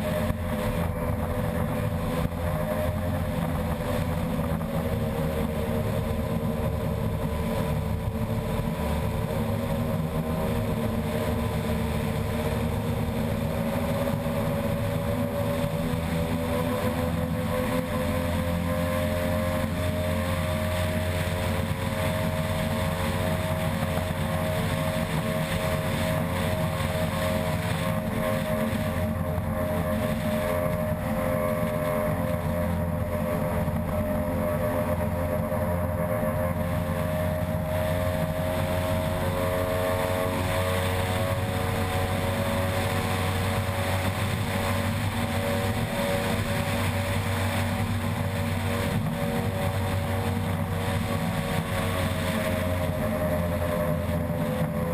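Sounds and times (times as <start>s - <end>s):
race boat engine running: 0.0s - 54.9s
rush of wind and water: 0.0s - 54.9s.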